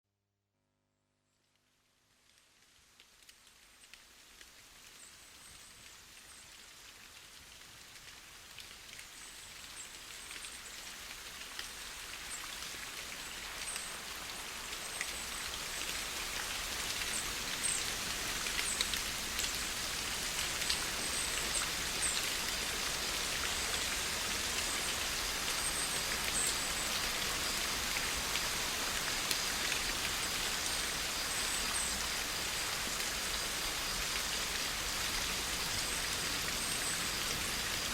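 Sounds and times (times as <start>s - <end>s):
rain pattering on a surface: 1.5s - 37.9s.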